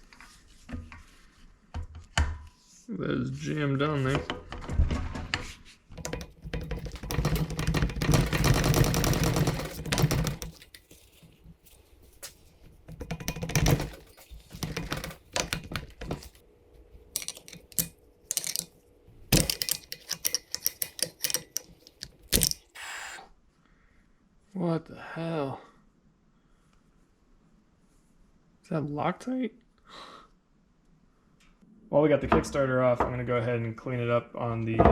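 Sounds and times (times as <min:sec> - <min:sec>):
metal taps: 0:06.0 - 0:11.4, 0:17.2 - 0:18.7, 0:19.4 - 0:22.7
ratchet wrench clicking: 0:17.2 - 0:18.7, 0:19.4 - 0:22.7.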